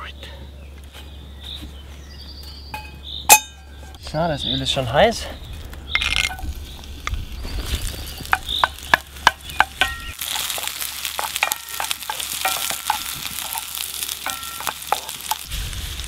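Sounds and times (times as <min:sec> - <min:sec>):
onions sizzling in oil: 0:06.1 - 0:16.0
wooden spoon knocking against pan: 0:08.3 - 0:15.4.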